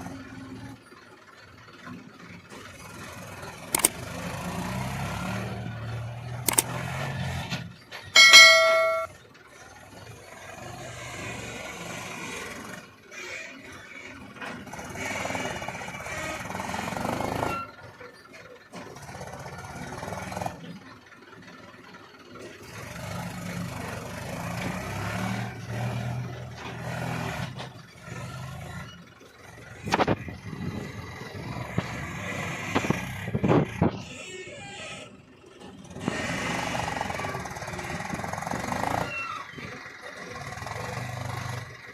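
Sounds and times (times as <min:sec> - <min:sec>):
tractor engines running: 0:00.0 - 0:41.9
sharp clicks: 0:03.8 - 0:04.0, 0:06.5 - 0:06.7.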